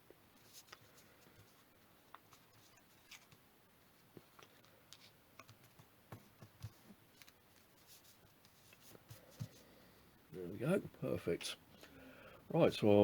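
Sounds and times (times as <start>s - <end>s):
paper crinkling and tapping: 4.2s - 9.6s.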